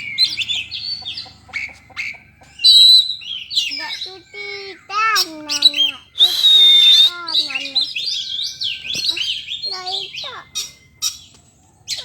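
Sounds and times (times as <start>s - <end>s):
bird singing whistles: 1.6s - 4.8s, 5.5s - 12.0s.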